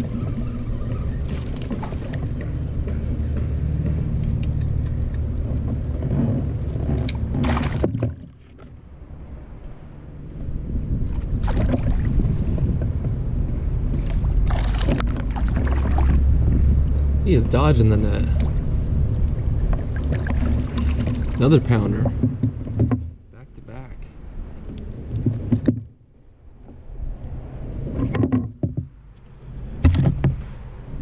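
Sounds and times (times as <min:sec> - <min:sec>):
low water rumble: 0:00.0 - 0:31.0
sharp splashes or knocks: 0:07.3 - 0:08.3, 0:11.1 - 0:12.2, 0:14.0 - 0:16.2.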